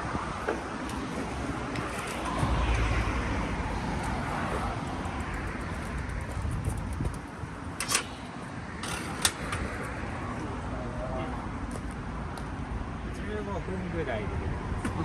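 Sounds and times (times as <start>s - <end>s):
vehicle passing rumble: 0.0s - 11.0s.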